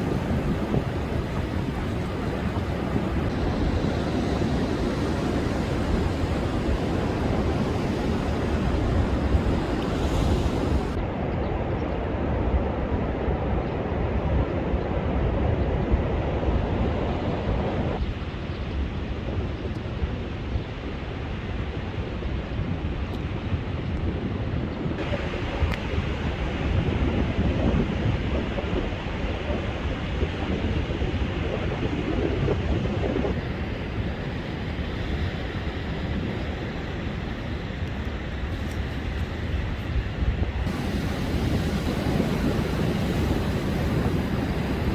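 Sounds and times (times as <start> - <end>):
surf breaking on beach: 0.0 - 11.0, 40.5 - 44.9
wind buffeting microphone: 0.0 - 44.9.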